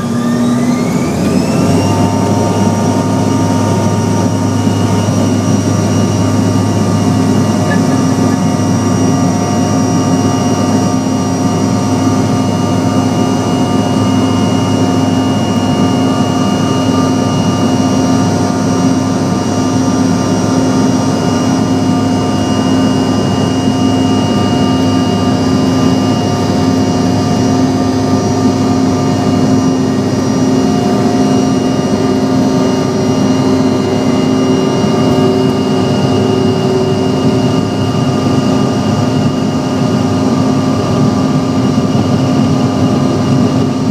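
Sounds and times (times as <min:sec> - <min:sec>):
jet engines droning in cabin: 0:00.0 - 0:43.9.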